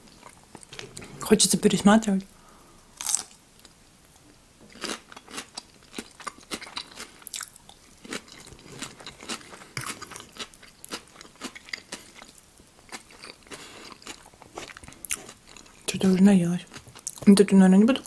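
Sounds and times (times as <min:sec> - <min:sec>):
person chewing food: 0:02.9 - 0:03.8, 0:04.7 - 0:15.9.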